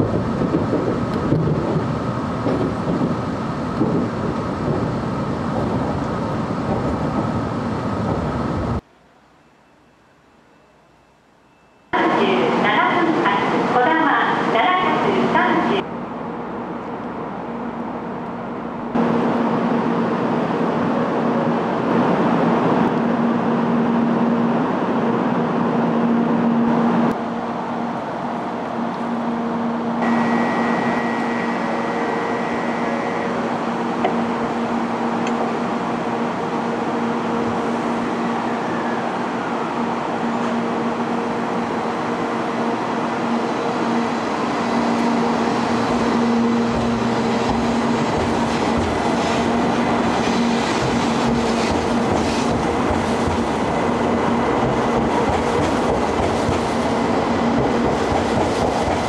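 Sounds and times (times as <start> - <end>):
train equipment humming: 0.0 - 59.0
train pulling away: 28.2 - 59.0
high steady tone: 29.1 - 34.2.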